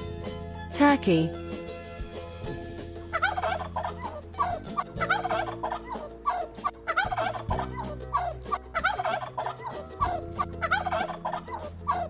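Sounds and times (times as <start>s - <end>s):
turkey gobbling: 3.2s - 4.6s, 5.2s - 7.6s, 8.8s - 9.8s, 10.7s - 11.4s.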